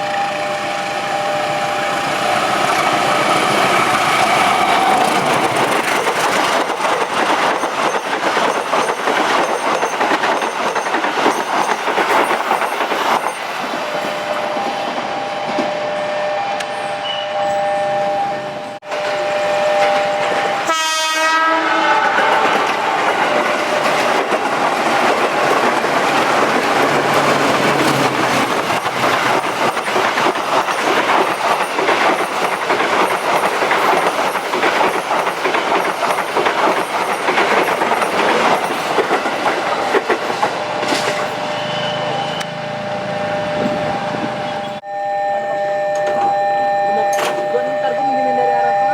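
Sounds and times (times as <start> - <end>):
two-tone train horn: 0.0 - 2.1, 13.9 - 22.9
trains rumbling past: 0.0 - 44.8.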